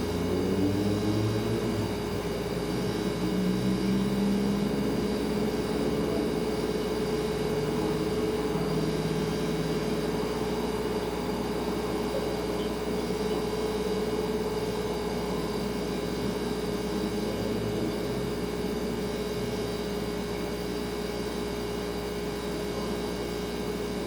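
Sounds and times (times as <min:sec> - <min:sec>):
refrigerator humming: 0:00.0 - 0:24.0.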